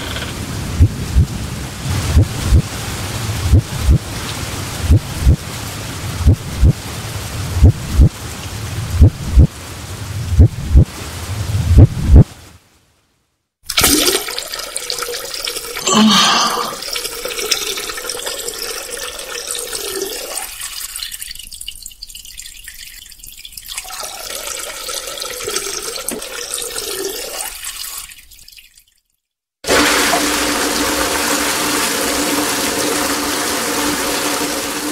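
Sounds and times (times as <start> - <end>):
water trickling: 13.7 - 29.1.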